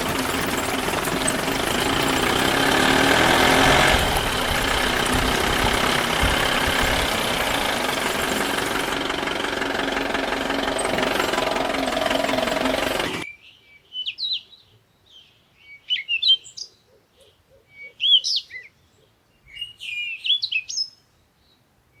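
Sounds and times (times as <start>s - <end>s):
birds chirping: 0.0s - 13.2s
vehicle engine running: 0.0s - 13.2s.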